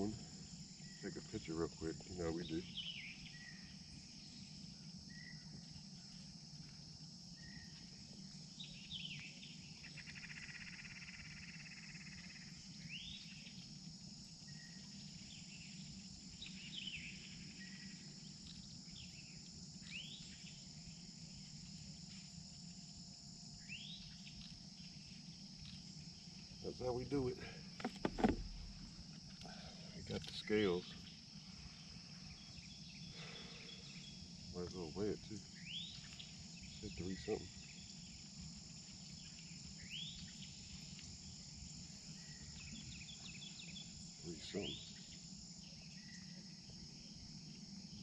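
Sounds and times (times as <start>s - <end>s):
crickets chirping: 0.0s - 48.0s
low steady hum: 12.4s - 44.3s.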